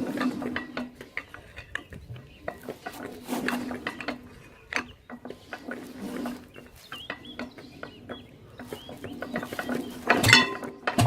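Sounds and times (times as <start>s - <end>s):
bird chirps: 4.2s - 10.4s.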